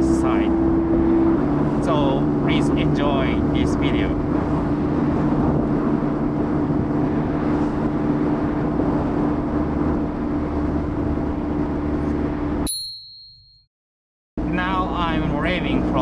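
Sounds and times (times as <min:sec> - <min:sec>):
road and wind noise: 0:00.0 - 0:12.8, 0:14.4 - 0:16.0
short high ding: 0:12.6 - 0:13.7.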